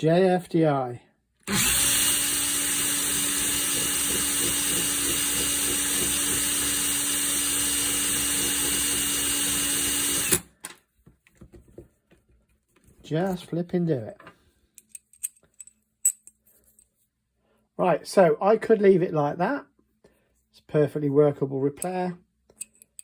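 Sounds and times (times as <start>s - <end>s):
electric drill running: 1.4s - 10.5s
file on screw: 1.5s - 10.4s.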